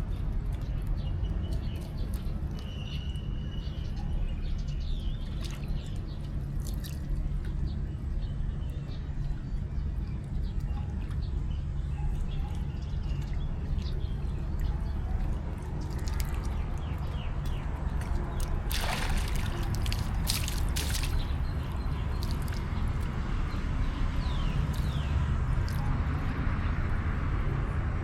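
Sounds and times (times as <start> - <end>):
steady low rumble: 0.0 - 28.0
monkeys splashing water: 13.1 - 23.2.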